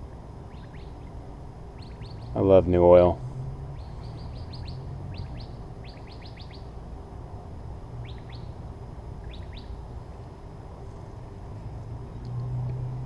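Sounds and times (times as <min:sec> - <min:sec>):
low hum: 0:00.0 - 0:13.0
small bird chirping: 0:00.5 - 0:01.2, 0:01.8 - 0:02.5, 0:03.7 - 0:06.8, 0:08.0 - 0:08.6, 0:09.2 - 0:09.8.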